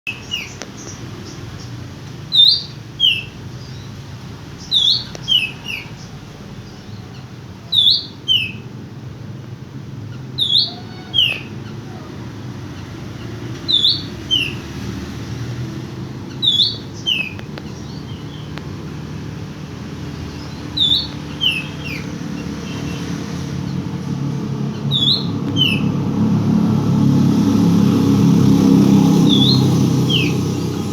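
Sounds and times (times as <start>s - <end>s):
low engine rumble: 8.6s - 30.9s.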